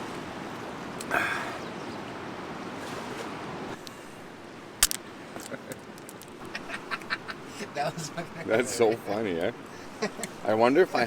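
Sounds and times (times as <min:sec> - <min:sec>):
river water rushing: 0:00.0 - 0:05.4.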